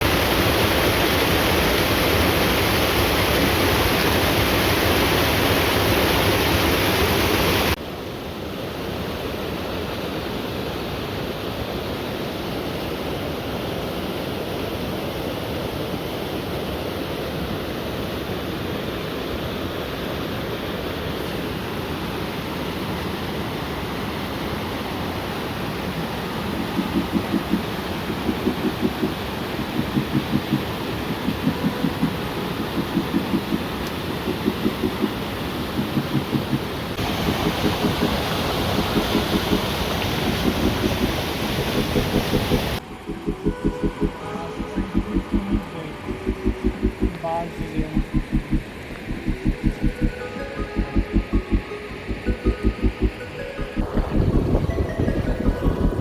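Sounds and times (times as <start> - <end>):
waterfall rushing: 25.9 - 56.0.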